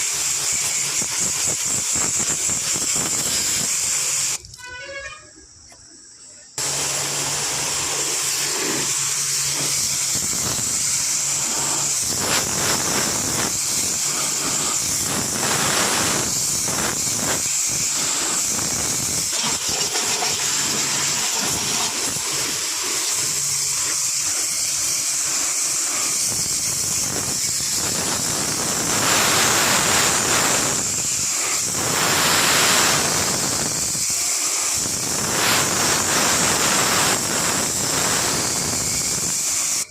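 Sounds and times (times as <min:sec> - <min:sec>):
pressurised spray hissing: 0:00.0 - 0:04.5, 0:06.6 - 0:39.9.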